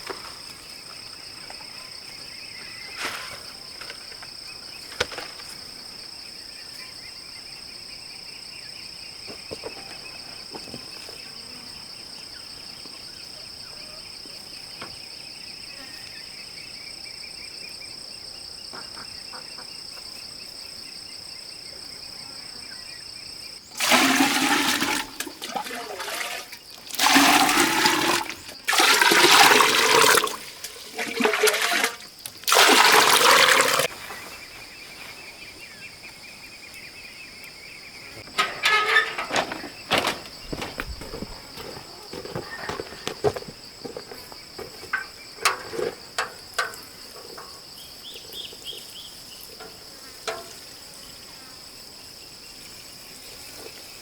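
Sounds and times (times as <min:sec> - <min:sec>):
insects trilling: 0:00.0 - 0:54.0
gushing splashing water: 0:23.8 - 0:33.9.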